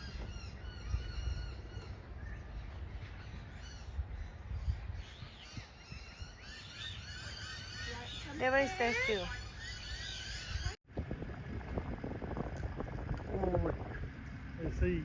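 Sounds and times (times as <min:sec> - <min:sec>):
many birds chirping: 0:00.0 - 0:10.8
steady low rumble: 0:09.5 - 0:15.0.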